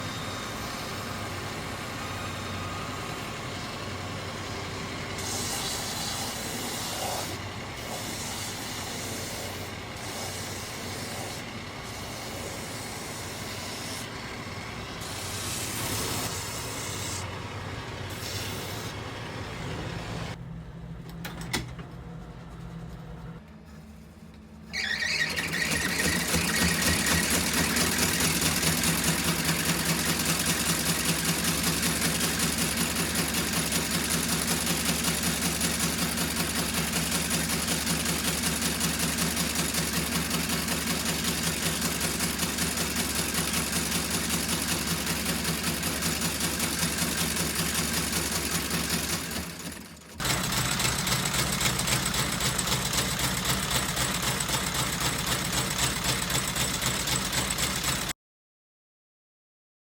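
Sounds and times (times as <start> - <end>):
sewing machine stitching: 24.7 - 58.1.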